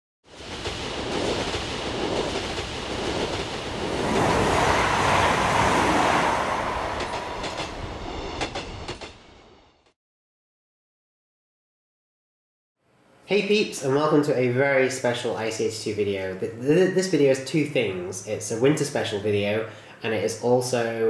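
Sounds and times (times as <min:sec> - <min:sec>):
train rushing past: 0:00.3 - 0:09.8.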